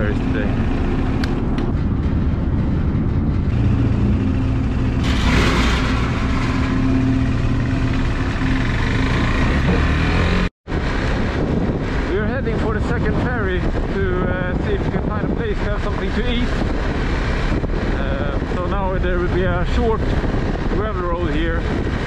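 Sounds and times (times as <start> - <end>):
wind and road noise: 0.0 - 22.0
motorcycle engine pulling away: 3.5 - 10.5.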